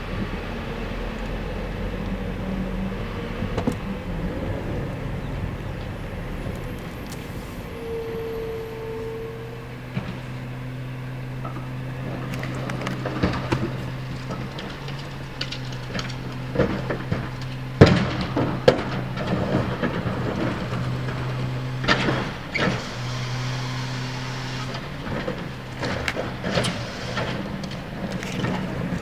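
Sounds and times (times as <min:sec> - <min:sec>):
refuse truck engine running: 0:00.0 - 0:29.0
trash loading knocks and clatter: 0:09.6 - 0:29.0.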